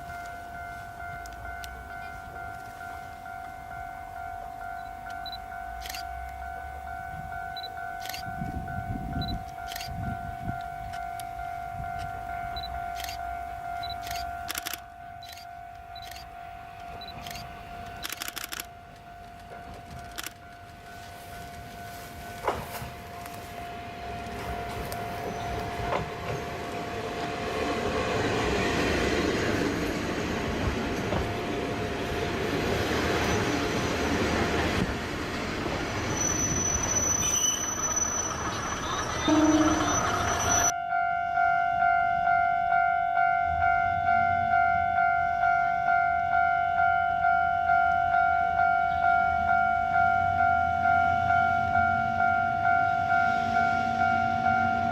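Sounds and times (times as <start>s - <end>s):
diesel railcar rumble and whine: 0.0s - 54.9s
sharp clicks: 13.9s - 20.6s.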